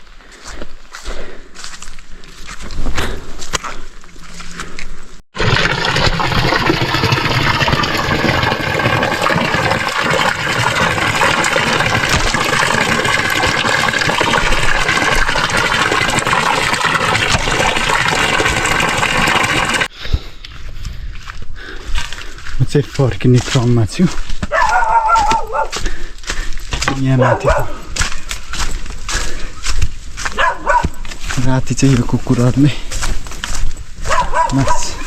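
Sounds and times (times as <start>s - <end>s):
footsteps: 0.0s - 5.2s, 20.0s - 35.0s
running water rushing: 5.4s - 19.9s.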